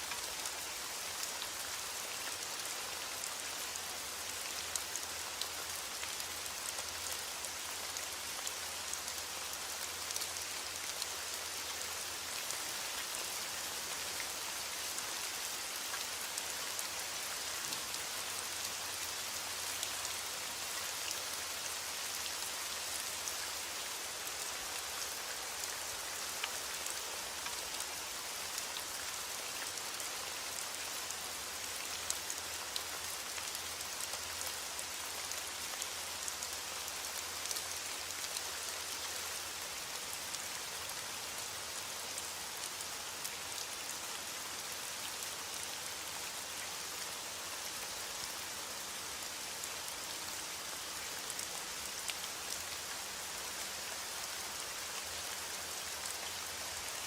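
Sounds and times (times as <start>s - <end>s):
rain falling on a surface: 0.0s - 57.0s.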